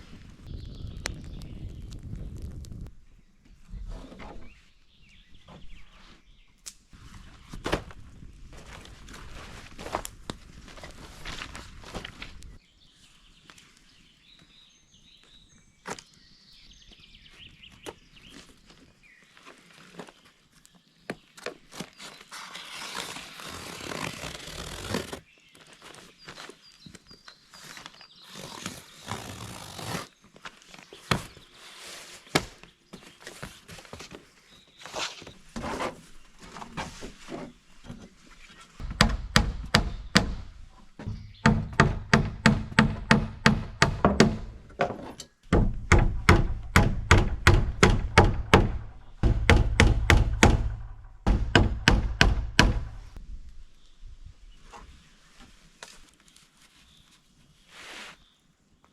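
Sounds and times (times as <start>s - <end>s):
rustling and handling noises: 7.0s - 12.6s, 17.8s - 38.8s, 54.5s - 58.4s.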